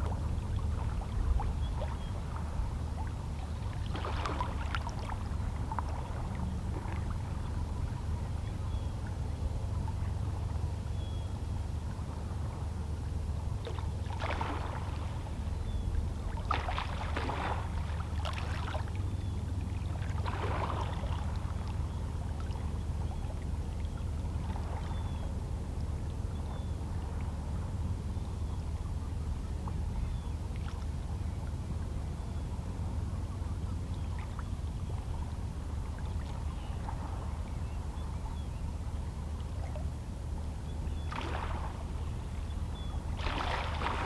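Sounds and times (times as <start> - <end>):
low rumble of the sea: 0.0 - 44.0
small waves lapping on rocks: 43.2 - 44.0.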